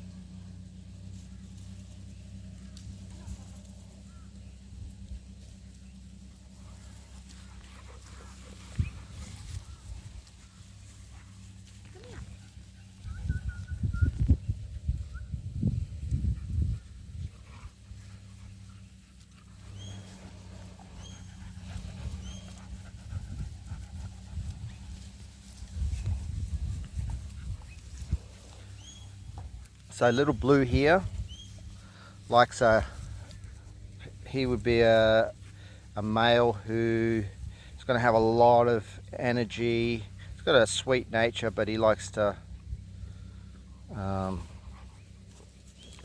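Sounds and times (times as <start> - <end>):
low hum: 0.0 - 46.0
puppies panting: 0.7 - 41.5, 42.4 - 46.0
puppies squeaking: 19.6 - 23.1, 28.6 - 29.3.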